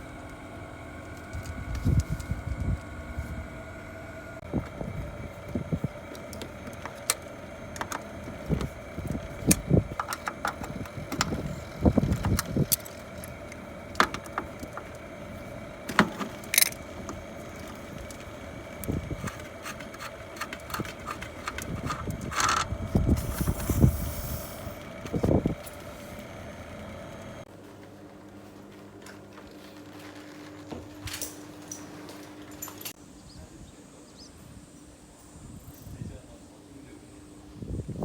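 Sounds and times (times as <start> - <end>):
hand tools clicking and knocking: 6.0 - 23.9.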